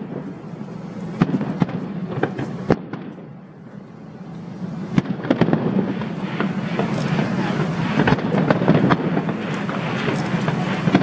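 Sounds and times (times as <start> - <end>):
fireworks bangs and cracks: 0.0 - 11.0
low background rumble: 0.0 - 11.0.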